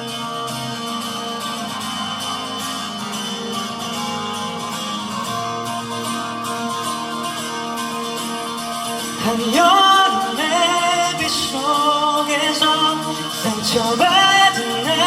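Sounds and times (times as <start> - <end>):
live band guitar music: 0.0 - 15.0
man singing: 9.2 - 15.0.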